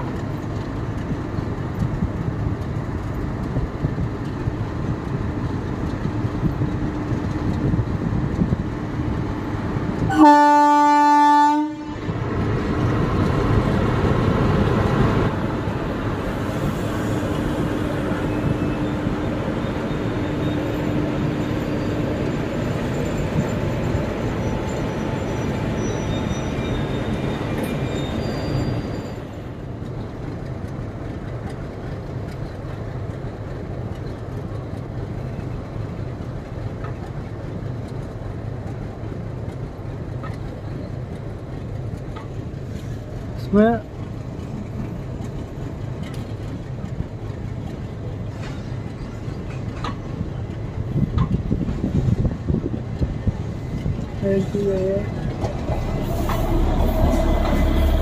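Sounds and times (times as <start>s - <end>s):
train wheels rumbling: 0.0s - 58.0s
locomotive horn: 10.1s - 12.1s.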